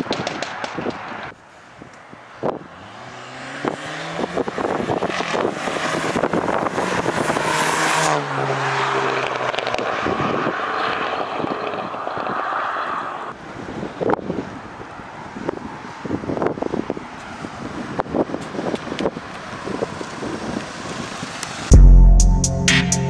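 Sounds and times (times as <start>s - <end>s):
car engine accelerating hard: 2.8s - 13.3s.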